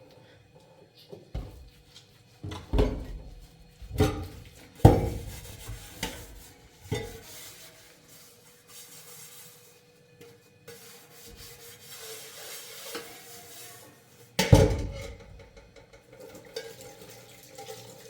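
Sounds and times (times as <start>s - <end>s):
dishes and pots clattering: 2.4s - 7.3s, 14.4s - 18.0s.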